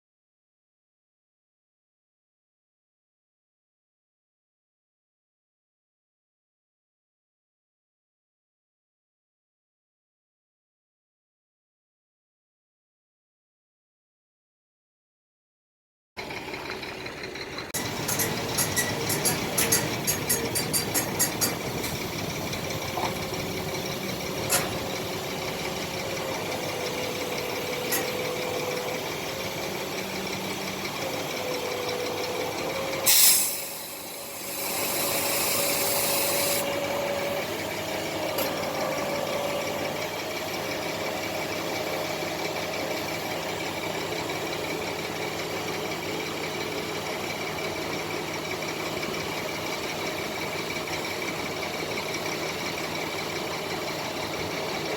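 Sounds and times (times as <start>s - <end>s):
truck engine idling: 16.2s - 54.9s
high air hiss: 33.1s - 36.6s.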